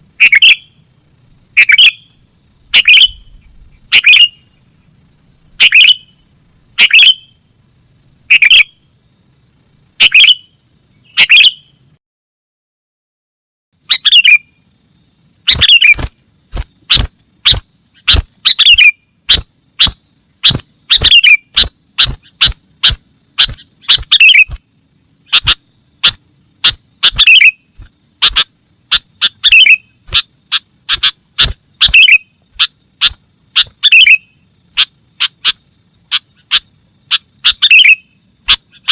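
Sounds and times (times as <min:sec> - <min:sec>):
bird calling sharp notes: 0:00.2 - 0:00.8, 0:01.6 - 0:04.5, 0:05.6 - 0:06.2, 0:06.8 - 0:07.4, 0:08.3 - 0:08.8, 0:10.0 - 0:10.5, 0:11.1 - 0:11.8, 0:13.8 - 0:14.6, 0:15.5 - 0:24.6, 0:25.2 - 0:38.9.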